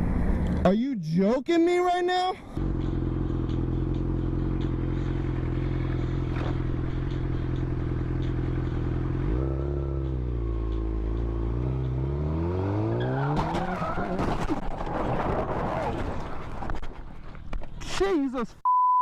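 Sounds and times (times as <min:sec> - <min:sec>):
motorcycle engine accelerating: 0:02.6 - 0:16.6.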